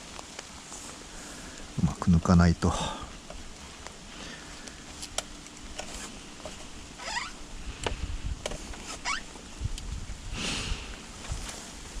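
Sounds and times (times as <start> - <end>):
short rising squeak: 7.0 - 7.4.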